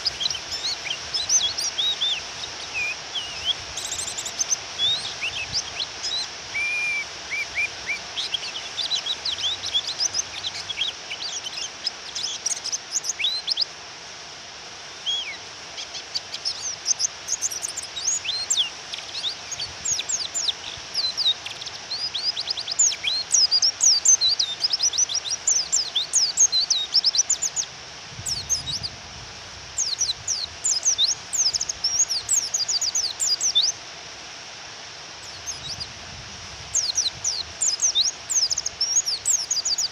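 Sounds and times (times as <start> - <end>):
rain hiss: 0.0 - 39.9
high bird chirps: 29.8 - 33.8, 35.2 - 35.9, 36.7 - 39.9.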